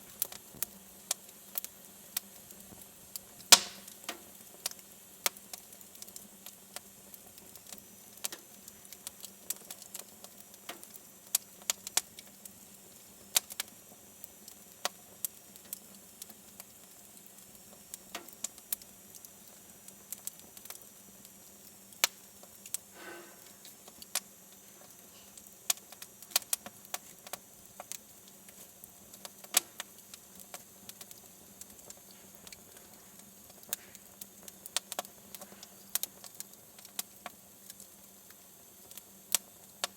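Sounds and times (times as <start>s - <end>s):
faint steady hum: 0.0s - 39.9s
wood fire crackling and popping: 0.0s - 39.9s.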